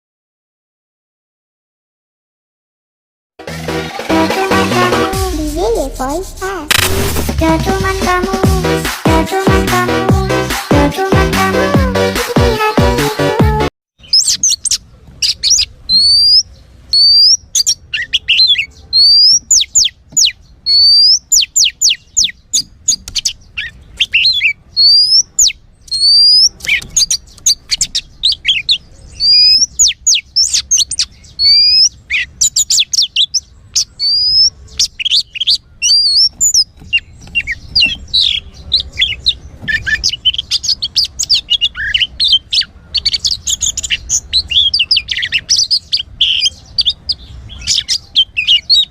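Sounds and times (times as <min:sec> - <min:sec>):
bird whistling and chattering: 0:14.0 - 0:48.9.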